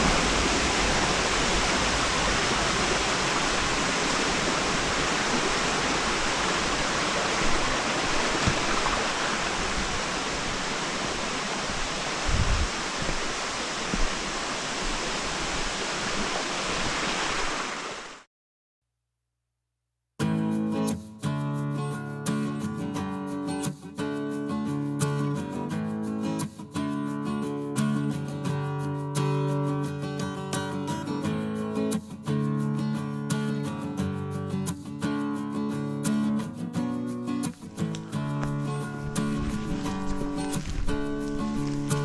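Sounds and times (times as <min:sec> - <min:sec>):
stream water rushing: 0:00.0 - 0:18.3, 0:37.5 - 0:42.0.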